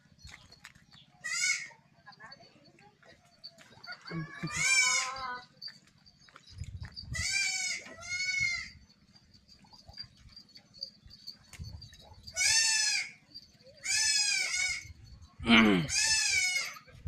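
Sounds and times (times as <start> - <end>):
young goat bleating: 1.2 - 1.8, 3.9 - 5.5, 7.1 - 8.8, 12.3 - 13.2, 13.8 - 14.9, 15.6 - 16.9.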